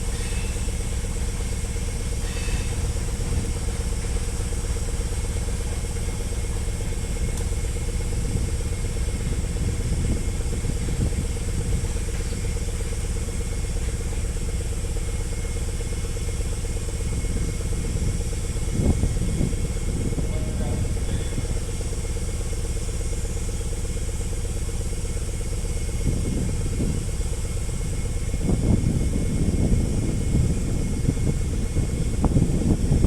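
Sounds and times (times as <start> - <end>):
locomotive hum: 0.0 - 33.0
train low rumble: 0.0 - 33.0.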